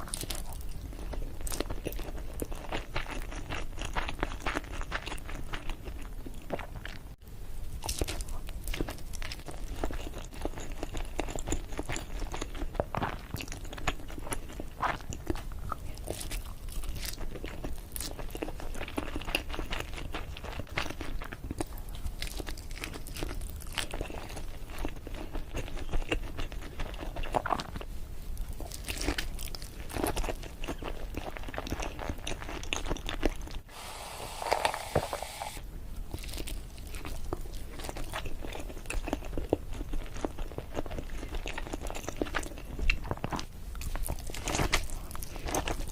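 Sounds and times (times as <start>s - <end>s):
chewing sushi close up: 0.0s - 7.2s, 7.8s - 45.9s.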